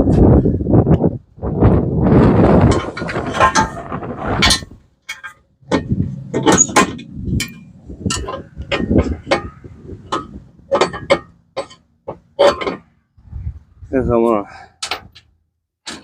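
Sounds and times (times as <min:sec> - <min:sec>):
metal rattling: 0:02.1 - 0:13.0.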